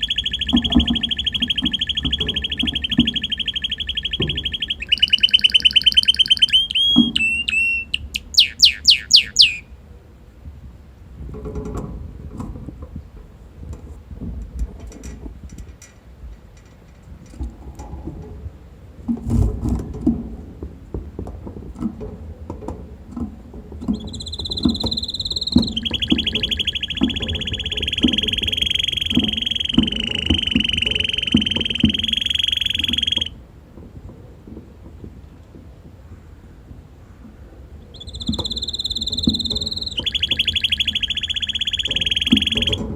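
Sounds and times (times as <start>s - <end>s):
canary trilling: 0.0s - 9.7s, 23.9s - 33.4s, 37.9s - 42.9s.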